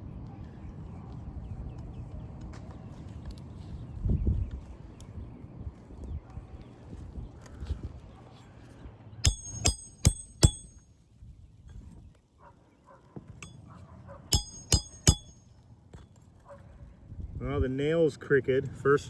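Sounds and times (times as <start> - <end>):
hammer striking nail: 9.3 - 10.8, 14.3 - 15.4.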